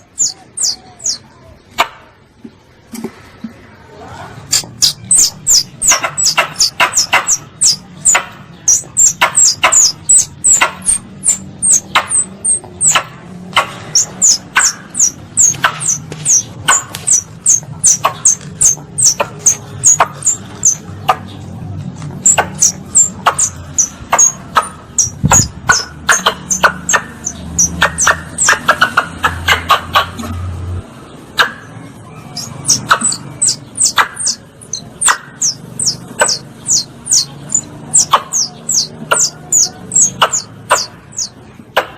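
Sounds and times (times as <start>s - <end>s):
squirrel calls: 0.0s - 2.1s, 4.5s - 30.6s, 31.3s - 41.9s.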